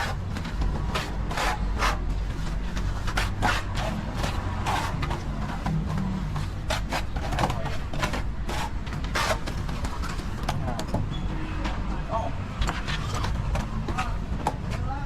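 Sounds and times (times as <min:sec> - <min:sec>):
plastering tool scraping wall: 0:00.0 - 0:10.4.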